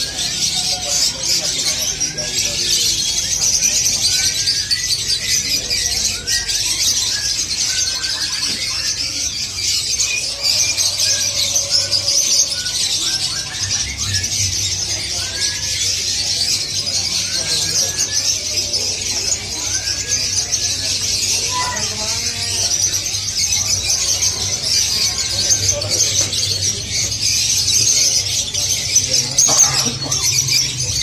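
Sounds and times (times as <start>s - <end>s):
songbirds chirping and singing: 0.0s - 31.0s.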